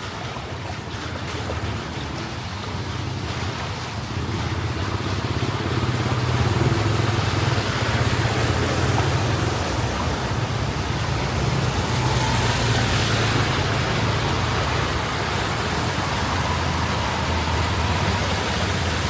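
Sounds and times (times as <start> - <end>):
rushing wash of water: 0.0 - 19.0
vehicle engines running: 0.0 - 19.0.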